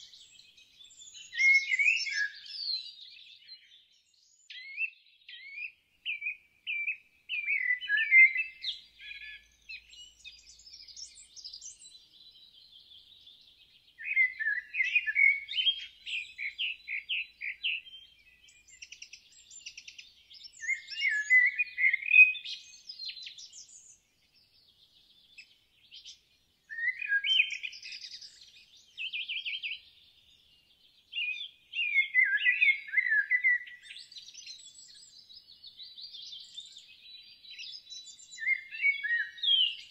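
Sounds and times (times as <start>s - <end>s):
faint bird chirps and trills: 0.0s - 39.9s.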